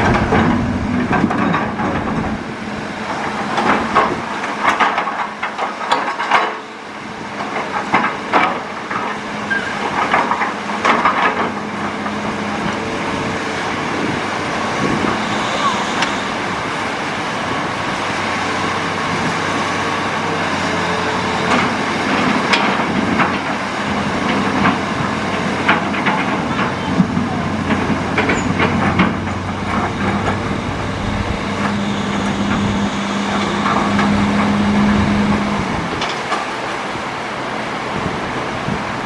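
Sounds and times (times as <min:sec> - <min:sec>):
sharp clanks and knocks: 0:00.0 - 0:02.4, 0:03.5 - 0:06.6, 0:07.4 - 0:12.2, 0:21.5 - 0:23.6, 0:24.2 - 0:30.6
excavator engine running: 0:00.0 - 0:39.0.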